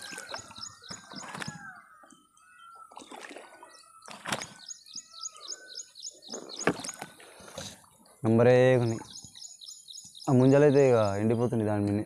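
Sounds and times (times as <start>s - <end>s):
small bird chirping: 3.7s - 7.1s, 8.8s - 10.9s.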